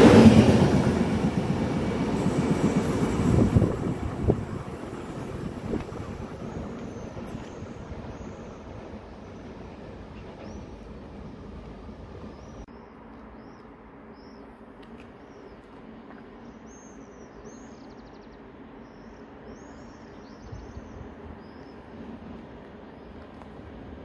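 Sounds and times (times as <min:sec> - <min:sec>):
small birds chirping: 0:16.4 - 0:21.9.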